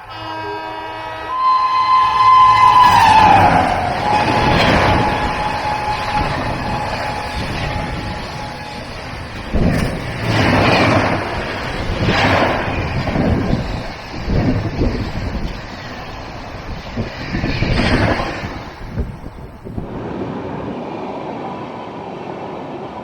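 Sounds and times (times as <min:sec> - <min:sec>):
train horn: 0:00.0 - 0:13.7
gusts of wind: 0:00.0 - 0:23.0
rush of passing train: 0:00.0 - 0:23.0.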